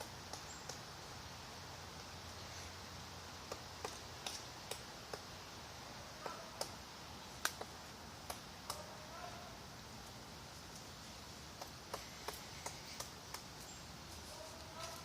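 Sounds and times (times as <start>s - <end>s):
woodpecker pecking at wood: 0.0s - 0.9s, 3.4s - 5.4s, 6.2s - 6.8s, 7.4s - 9.0s, 11.4s - 15.0s.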